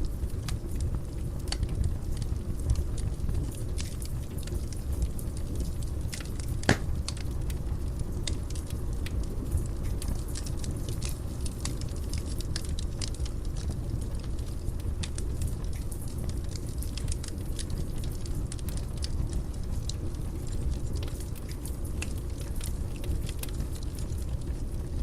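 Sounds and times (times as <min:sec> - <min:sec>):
fire crackling and popping: 0:00.0 - 0:25.0
low rumble of flames: 0:00.0 - 0:25.0.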